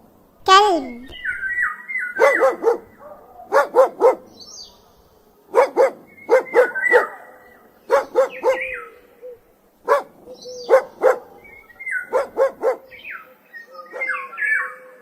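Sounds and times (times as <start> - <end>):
dog barking: 2.2 - 4.4, 5.5 - 8.9, 9.8 - 13.0, 13.9 - 14.2.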